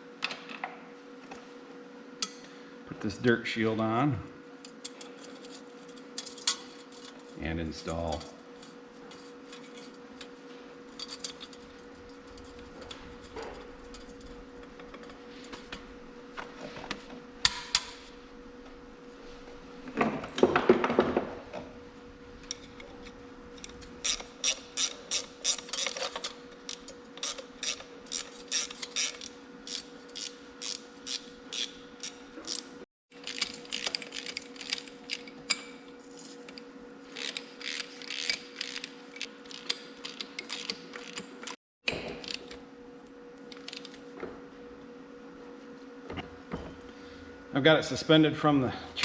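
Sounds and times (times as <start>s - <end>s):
ratchet wrench clicking: 24.0s - 26.1s, 26.7s - 32.7s, 37.2s - 38.9s.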